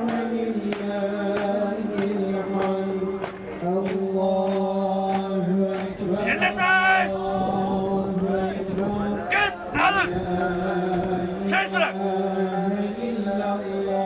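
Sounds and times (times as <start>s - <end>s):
men chanting: 0.0s - 14.0s.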